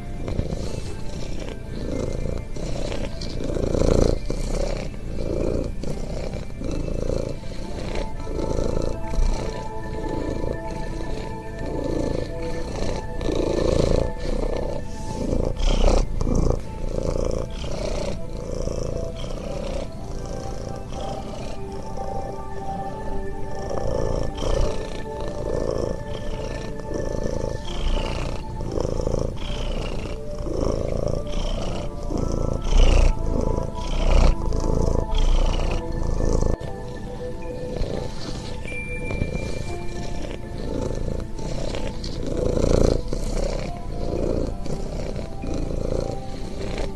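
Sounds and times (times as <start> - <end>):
background music: 0.0 - 46.9
cat purring: 0.0 - 46.9.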